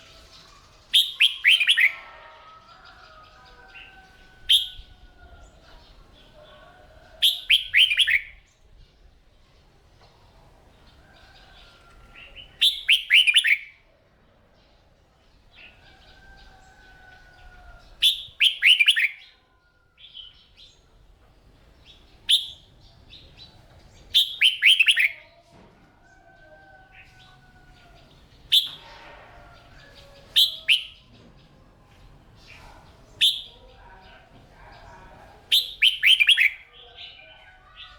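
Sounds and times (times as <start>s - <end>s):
bird warbling: 0.0s - 2.0s, 24.2s - 25.2s, 28.5s - 31.0s, 35.5s - 36.6s
drawn-out whistled bird notes: 0.0s - 2.2s, 7.2s - 8.4s, 12.6s - 13.7s, 28.5s - 31.0s, 33.2s - 33.6s.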